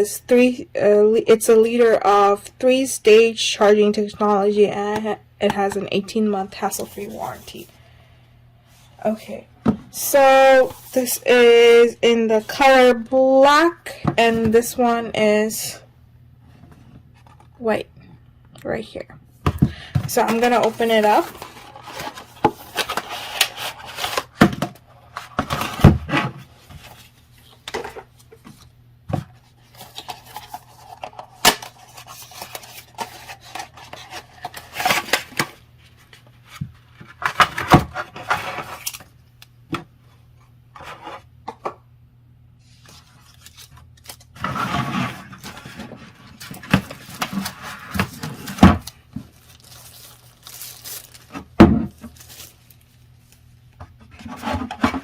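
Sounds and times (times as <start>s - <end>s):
faint steady hum: 0.0s - 55.0s
rustling packaging: 20.1s - 28.7s, 29.3s - 39.2s, 42.6s - 55.0s.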